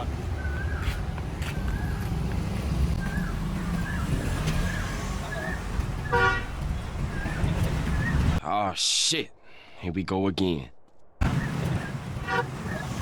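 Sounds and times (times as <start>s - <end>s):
rumble of passing vehicles: 0.0s - 8.4s, 11.2s - 13.0s
vehicle horn toot: 6.0s - 6.6s, 12.2s - 12.7s.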